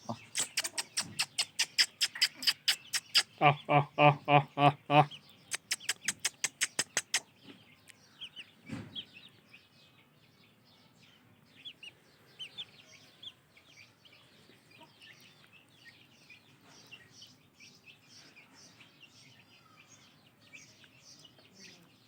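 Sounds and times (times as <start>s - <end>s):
faint bird chirps: 0.0s - 3.8s, 4.6s - 22.0s
sharp clicks: 0.3s - 3.3s, 5.5s - 7.2s.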